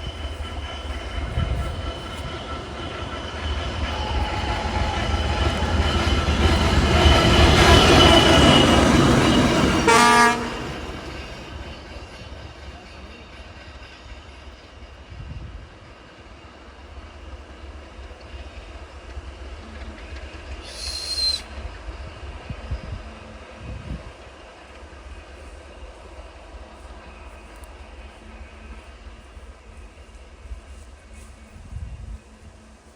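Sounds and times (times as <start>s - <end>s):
diesel locomotive rumble: 0.0s - 32.8s
locomotive horn blast: 9.8s - 11.0s.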